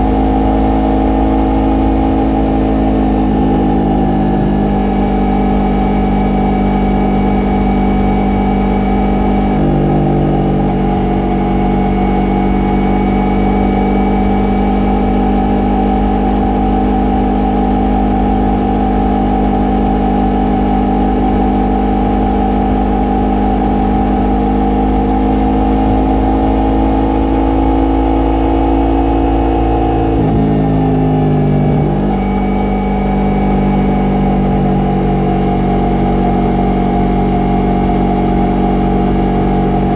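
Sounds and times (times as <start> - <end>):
motorcycle engine and exhaust running: 0.0 - 39.9.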